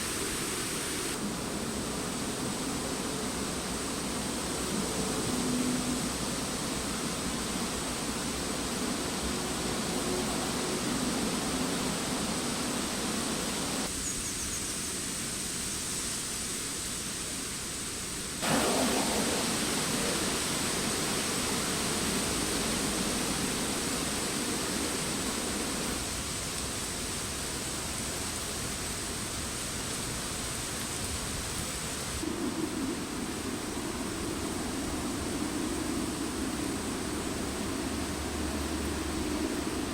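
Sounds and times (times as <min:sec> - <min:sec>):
wind rustling tree foliage: 0:00.0 - 0:39.9.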